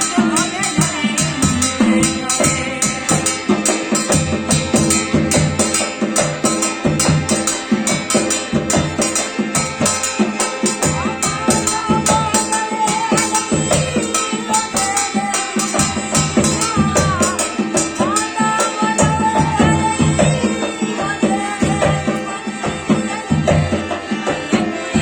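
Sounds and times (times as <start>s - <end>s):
drum and percussion beat: 0.0s - 25.0s
held melody line: 0.0s - 25.0s.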